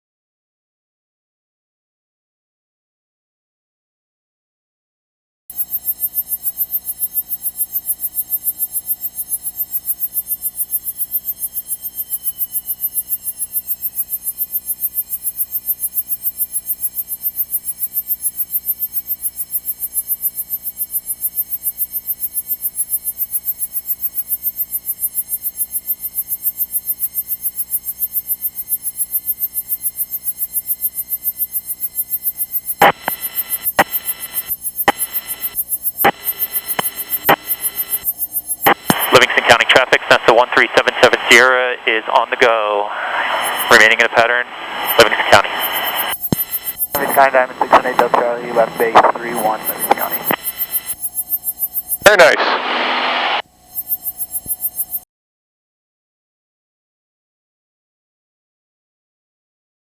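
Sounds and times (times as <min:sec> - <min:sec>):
pulsing electrical hum: 0:05.5 - 0:55.0
falling whine: 0:38.7 - 0:51.0, 0:52.1 - 0:53.4.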